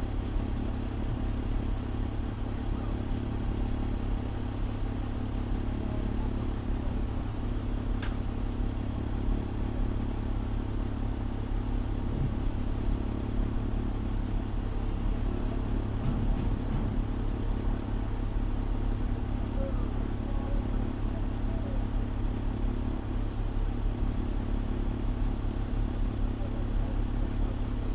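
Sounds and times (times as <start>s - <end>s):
diesel engine idling: 0.0s - 27.9s
faint tick: 8.0s - 8.2s.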